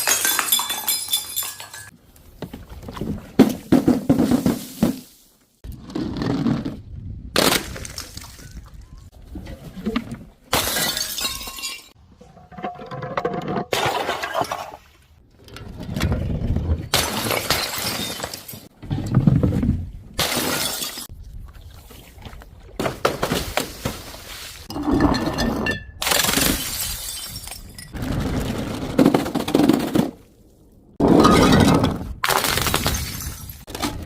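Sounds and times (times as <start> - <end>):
glass ringing tinkle: 0.0 - 1.9
glass bottles shattering: 0.0 - 2.0, 10.5 - 12.0, 16.9 - 18.7, 20.2 - 21.1, 24.7 - 28.0, 31.0 - 33.7.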